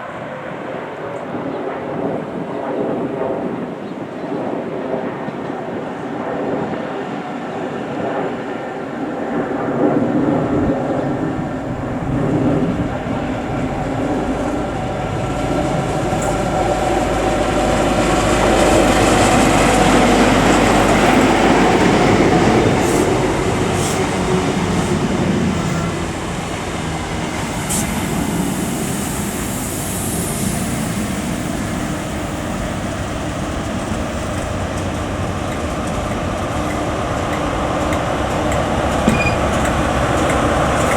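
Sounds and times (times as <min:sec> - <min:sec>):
train wheels rumbling on rails: 0:00.0 - 0:40.9
train mechanical tones: 0:09.1 - 0:29.2, 0:33.9 - 0:40.9.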